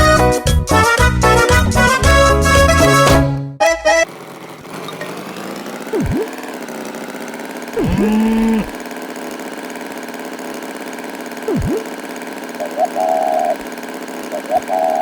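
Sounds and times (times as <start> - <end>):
engine idling: 3.9 - 15.0
short swooping tones: 5.9 - 6.6, 7.7 - 8.8, 11.5 - 12.0.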